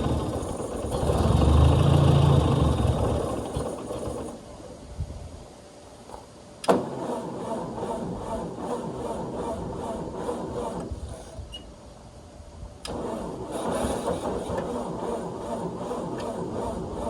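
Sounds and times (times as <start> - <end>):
starter cranking engine: 0.0 - 4.4, 6.7 - 11.4, 12.9 - 17.0
tractor engine running: 0.0 - 4.6, 6.7 - 11.4, 12.9 - 17.0.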